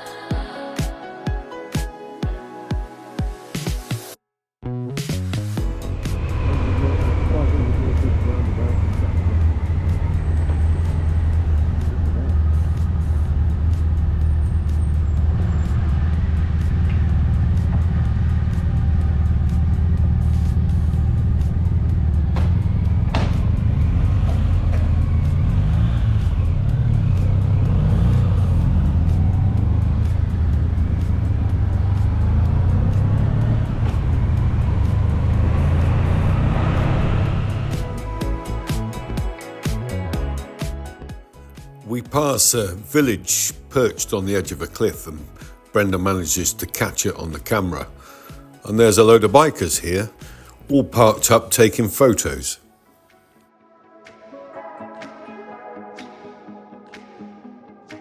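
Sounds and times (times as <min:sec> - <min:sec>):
wind rushing: 0:05.6 - 0:13.5, 0:29.5 - 0:38.2
motorcycle engine running steadily: 0:05.6 - 0:38.7.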